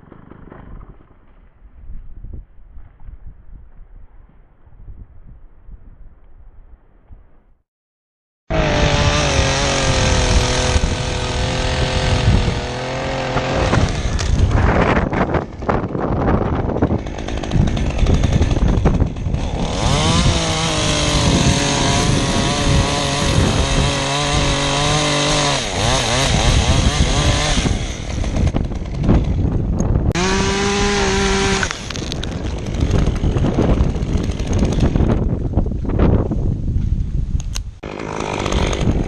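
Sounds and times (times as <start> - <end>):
wind on microphone: 0.0 - 7.5, 8.5 - 37.8, 38.5 - 39.0
chainsaw cutting: 8.5 - 35.4, 37.8 - 39.0.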